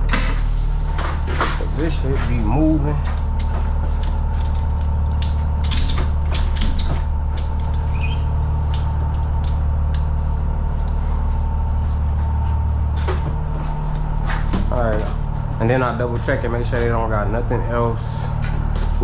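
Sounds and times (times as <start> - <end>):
truck engine idling: 0.7 - 6.3
metal clicks and creaks: 0.9 - 10.2.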